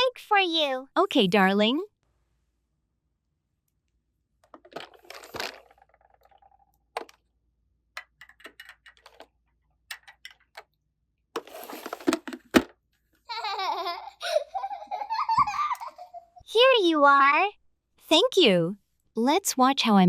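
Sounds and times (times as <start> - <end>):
plastic toy pieces clicking: 8.0 - 9.3, 9.9 - 10.6
person giggling: 13.3 - 16.4.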